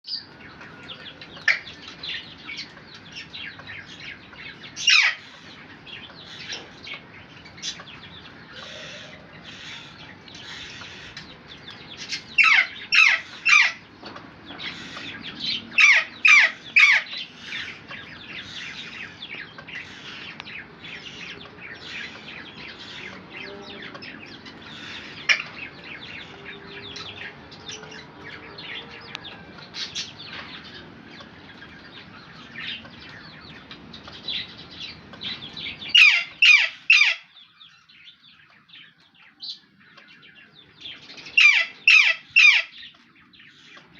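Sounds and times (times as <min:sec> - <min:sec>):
parrots chirping and chattering: 0:00.1 - 0:43.9
loud harsh parrot calls: 0:04.8 - 0:05.5, 0:08.5 - 0:11.2, 0:12.1 - 0:13.9, 0:14.6 - 0:19.0, 0:35.9 - 0:37.4, 0:41.4 - 0:42.8.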